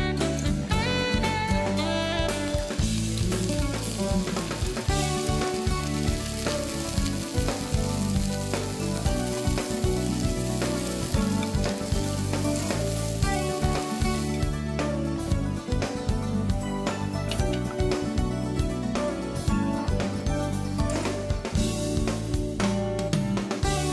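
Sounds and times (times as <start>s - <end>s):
vegetables sizzling in hot oil: 2.5s - 14.6s.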